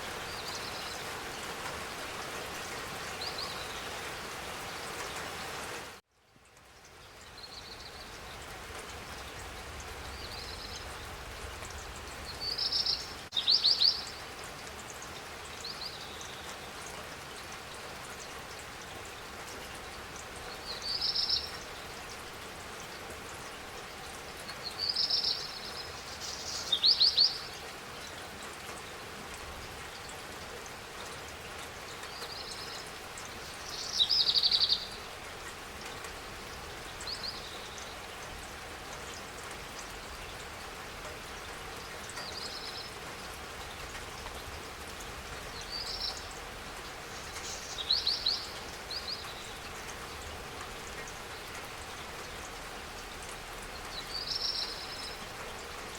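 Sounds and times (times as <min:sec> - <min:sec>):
steady rain falling: 0:00.0 - 0:55.9
songbird chirping and trilling: 0:33.6 - 0:35.0, 0:47.1 - 0:49.6.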